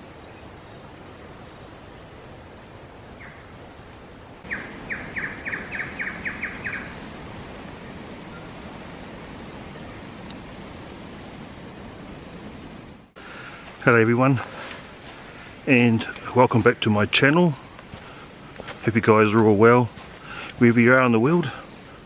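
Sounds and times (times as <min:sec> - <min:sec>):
steady background hiss: 0:00.0 - 0:22.0
bird calling sharp notes: 0:04.4 - 0:07.0.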